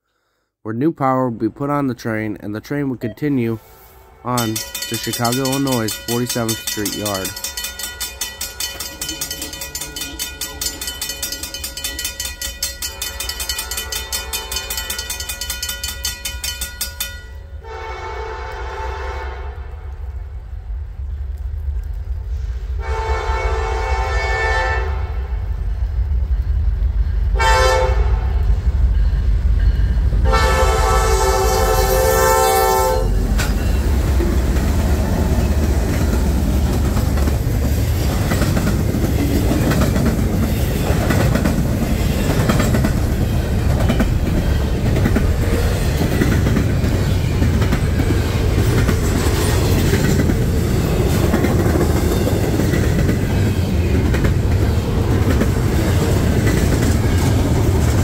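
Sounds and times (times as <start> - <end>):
train rumbling by: 2.7 - 58.0
locomotive horn: 3.8 - 4.4, 17.6 - 20.0, 22.8 - 25.5, 27.4 - 28.5, 30.2 - 33.2
wheels clicking over rail joints: 4.4 - 17.4, 33.2 - 58.0.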